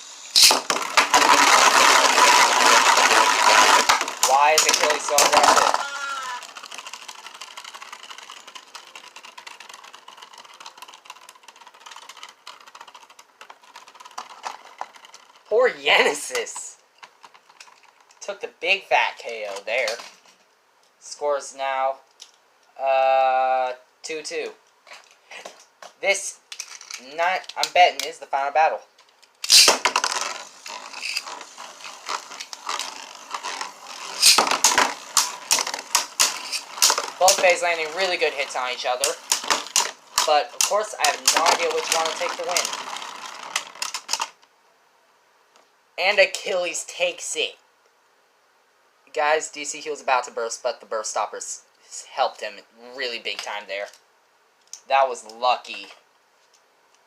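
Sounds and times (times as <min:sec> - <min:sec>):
spinning tops clashing and grinding: 0:00.1 - 0:16.7, 0:29.4 - 0:44.4.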